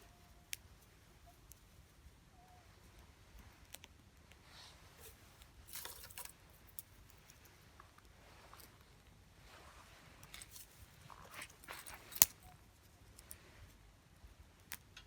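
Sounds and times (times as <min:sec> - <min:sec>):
wood fire crackling: 0:09.8 - 0:12.6.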